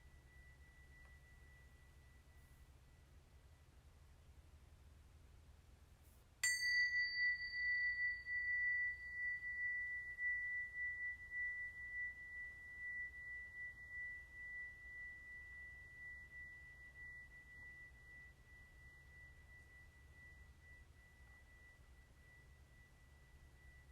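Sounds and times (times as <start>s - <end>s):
metal chime ringing: 6.4s - 23.9s.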